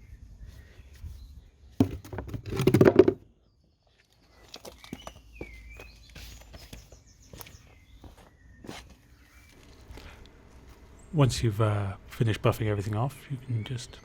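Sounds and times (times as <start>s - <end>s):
faint bird chirps: 3.3s - 9.7s.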